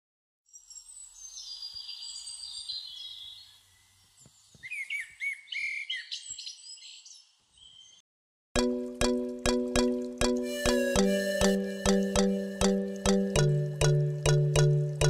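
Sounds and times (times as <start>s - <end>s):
birds chirping and singing: 0.8s - 8.0s
music with evenly struck notes: 8.6s - 15.0s.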